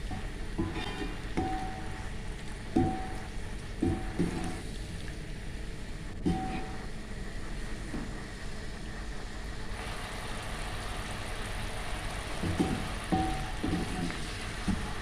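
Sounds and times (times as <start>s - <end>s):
food sizzling in a pan: 9.8s - 15.0s.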